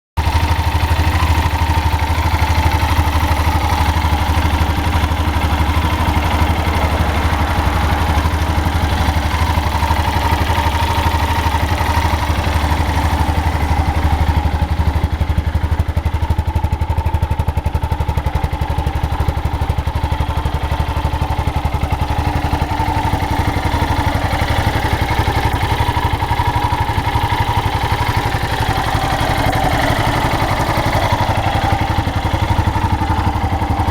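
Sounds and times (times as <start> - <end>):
motorcycle engine idling: 0.2 - 33.9.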